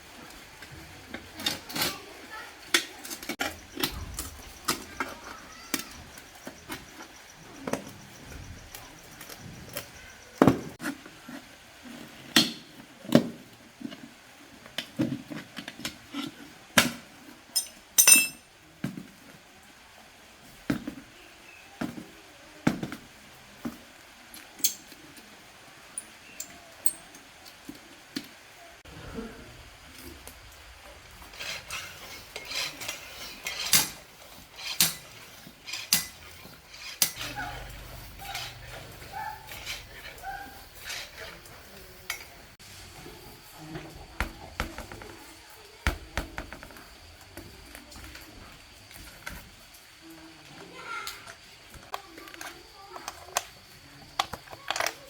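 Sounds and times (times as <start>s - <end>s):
metal tools clinking: 17.6s - 18.5s, 26.0s - 27.3s, 31.4s - 42.6s.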